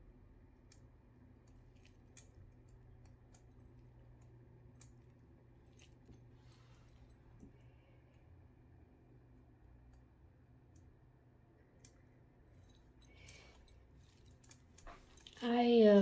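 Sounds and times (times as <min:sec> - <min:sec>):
faint low hum: 0:00.0 - 0:16.0
faint small clicks: 0:11.8 - 0:15.4.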